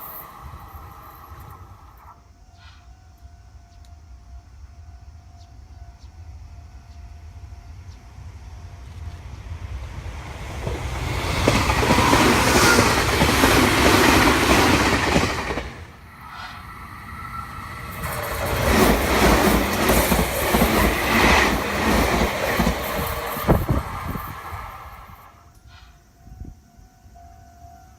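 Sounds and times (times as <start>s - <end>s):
electric train passing: 0.0s - 27.9s
wheels clattering on rails: 10.5s - 24.6s.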